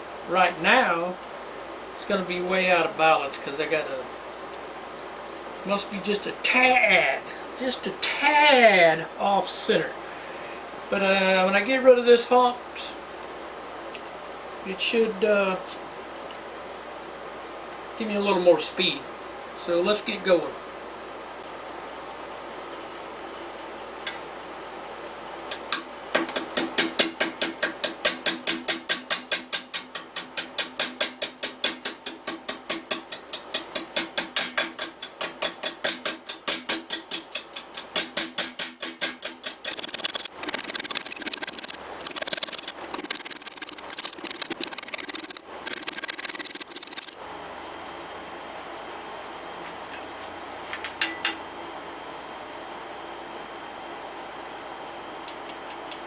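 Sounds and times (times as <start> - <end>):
turning tool knocking on wood: 25.5 - 47.2, 49.8 - 51.5
wood lathe running: 39.6 - 47.2.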